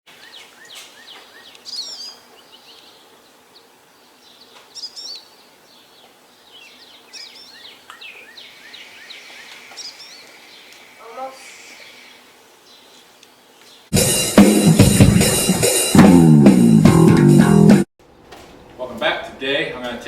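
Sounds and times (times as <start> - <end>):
bird chirps: 0.1 - 13.9
faint background hiss: 0.1 - 13.9
songbirds singing: 0.1 - 13.9.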